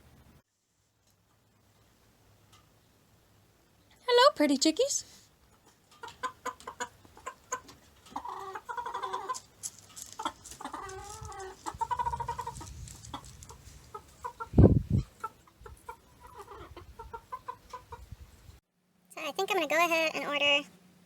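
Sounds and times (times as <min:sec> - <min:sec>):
chickens clucking: 0:05.4 - 0:18.4
chicken warbling calls: 0:06.0 - 0:09.4, 0:10.2 - 0:18.2.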